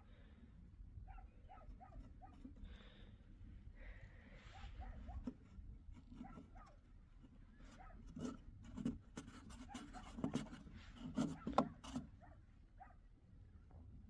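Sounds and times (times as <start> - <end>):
faint scratching: 4.6 - 12.2.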